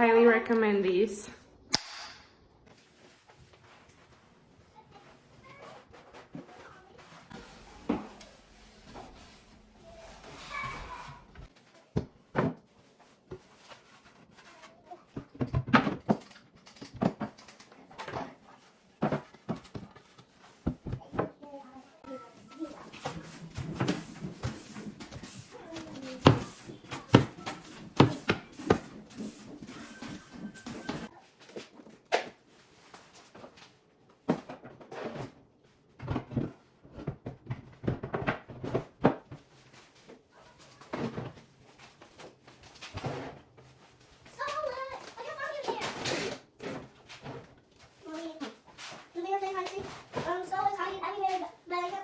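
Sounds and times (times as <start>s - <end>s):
household items clattering: 12.2s - 21.4s, 22.0s - 31.1s.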